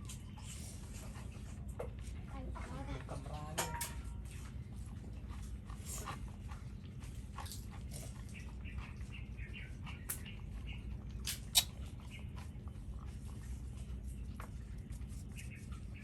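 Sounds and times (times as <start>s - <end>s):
dogs chewing and crunching: 0.0s - 16.0s.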